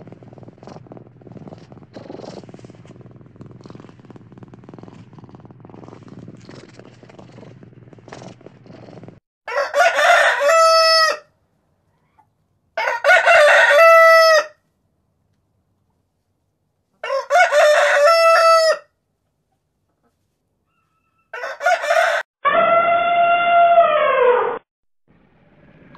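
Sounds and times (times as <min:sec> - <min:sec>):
cat purring: 0:00.0 - 0:09.2
rooster crowing: 0:09.5 - 0:11.3, 0:12.8 - 0:14.6, 0:17.0 - 0:18.9, 0:20.8 - 0:24.6.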